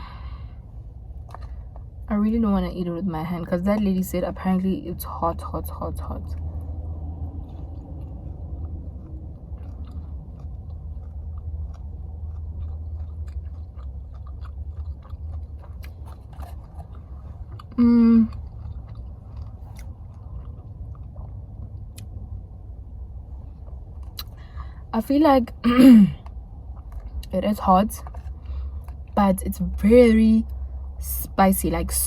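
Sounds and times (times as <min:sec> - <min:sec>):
person chewing dried meat: 0:00.0 - 0:02.1, 0:06.2 - 0:24.8, 0:26.2 - 0:27.4, 0:28.0 - 0:29.2
low hum: 0:00.0 - 0:32.0.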